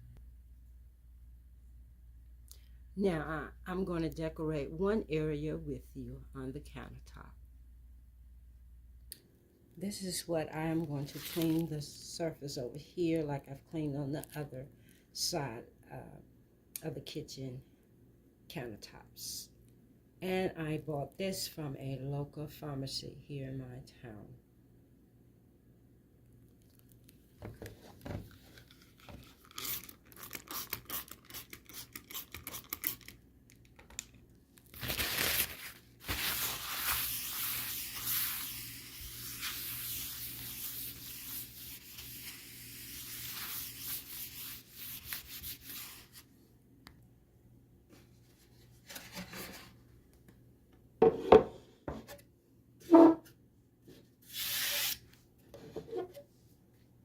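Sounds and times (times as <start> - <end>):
rubbing and scrubbing countertop: 36.1 - 46.2
objects knocking on counter: 51.0 - 52.1.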